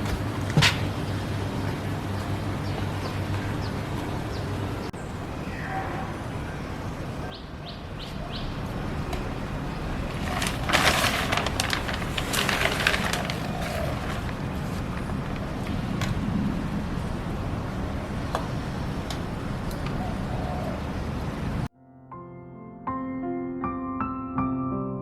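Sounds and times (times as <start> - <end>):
small birds chirping: 1.0 - 10.2
crackling noise: 8.6 - 21.7.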